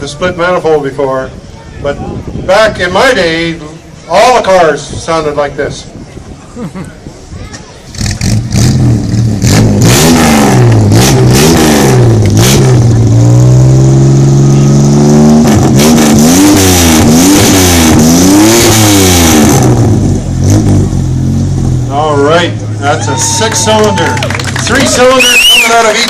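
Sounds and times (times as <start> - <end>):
car engine revving: 8.0 - 22.0.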